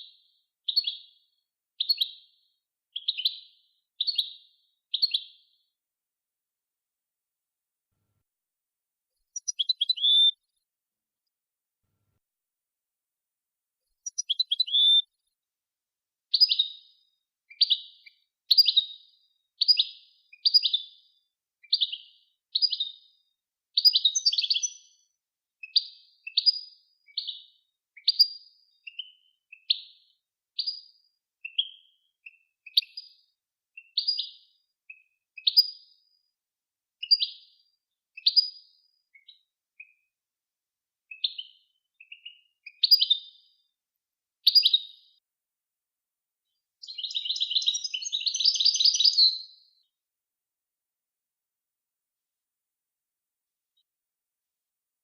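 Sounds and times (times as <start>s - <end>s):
songbird chirping: 0.0s - 5.8s, 9.1s - 10.6s, 13.8s - 15.4s, 16.3s - 23.2s, 23.8s - 33.2s, 33.8s - 36.1s, 37.0s - 40.1s, 41.1s - 43.7s, 44.4s - 45.2s, 46.5s - 50.0s.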